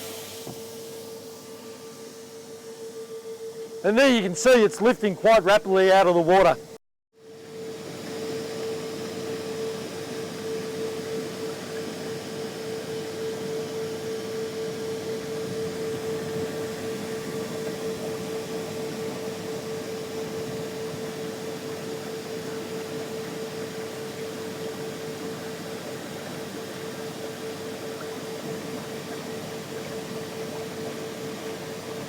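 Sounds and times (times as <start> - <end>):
electric blowers humming: 3.6 - 6.8.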